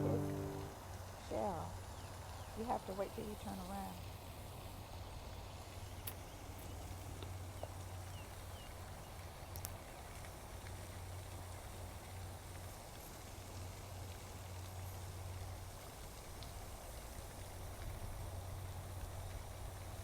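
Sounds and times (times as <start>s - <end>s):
low rumble: 0.0s - 0.7s
even hiss: 0.0s - 1.7s.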